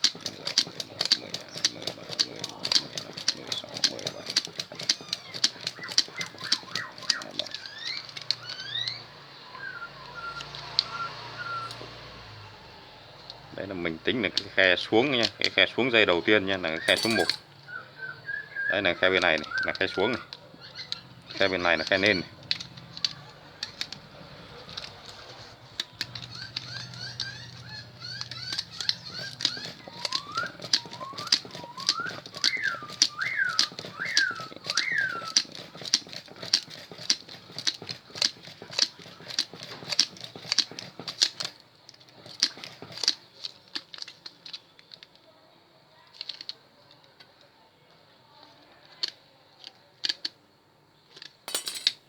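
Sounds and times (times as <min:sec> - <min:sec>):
wire winding clicks: 0:00.0 - 0:09.0, 0:16.8 - 0:17.5, 0:19.2 - 0:45.2, 0:51.1 - 0:52.0
bird chirps and whistles: 0:05.8 - 0:11.8, 0:26.3 - 0:35.4.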